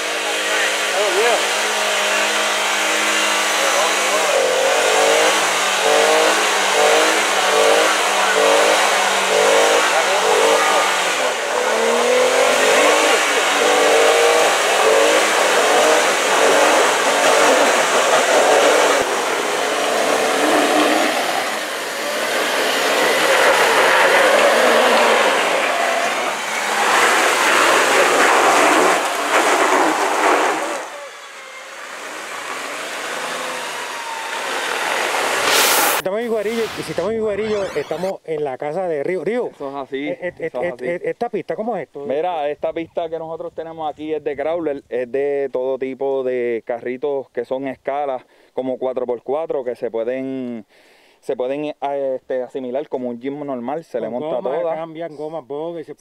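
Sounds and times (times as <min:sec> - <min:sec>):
vehicle engine revving: 0:00.0 - 0:38.1.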